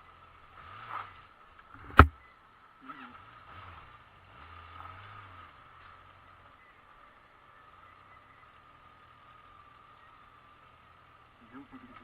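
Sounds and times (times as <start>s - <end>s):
motorcycle engine revving: 0.0s - 2.2s
sharp knock: 1.8s - 2.1s.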